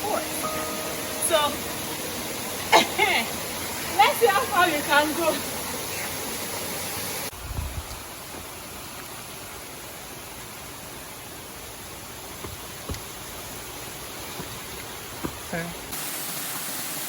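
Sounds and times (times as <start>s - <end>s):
waterfall rushing: 0.0s - 7.3s.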